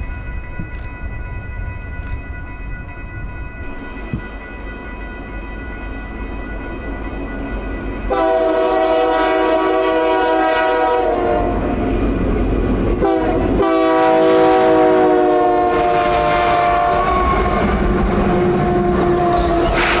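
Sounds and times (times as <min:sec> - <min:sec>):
moving train rumble: 0:00.0 - 0:20.0
locomotive air horn blasts: 0:08.1 - 0:11.8, 0:13.0 - 0:17.7.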